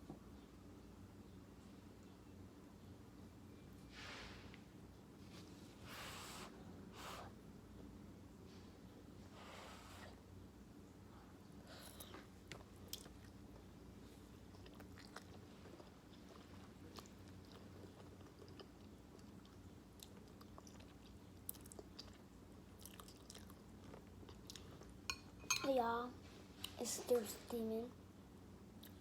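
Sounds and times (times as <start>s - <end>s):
steady low hum: 0.0s - 29.0s
person chewing noodles: 11.9s - 25.2s.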